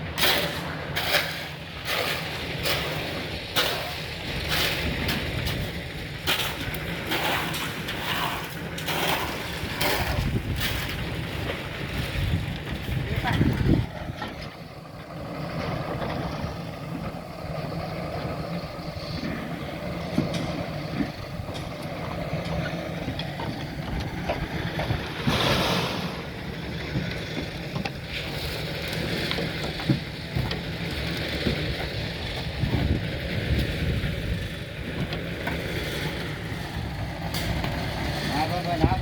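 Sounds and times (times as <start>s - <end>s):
engine-like rumble: 0.0s - 39.0s
short rush of noise: 25.2s - 26.4s.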